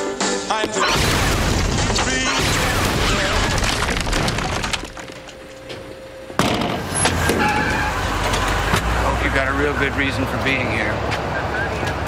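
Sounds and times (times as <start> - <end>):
glass and debris falling: 1.0 - 5.5.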